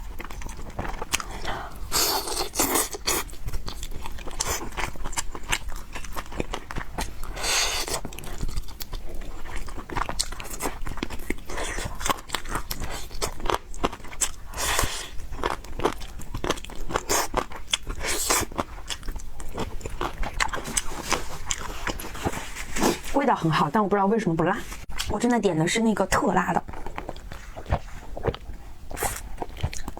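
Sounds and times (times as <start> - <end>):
chewing and biting food: 0.0 - 23.1, 26.6 - 29.9.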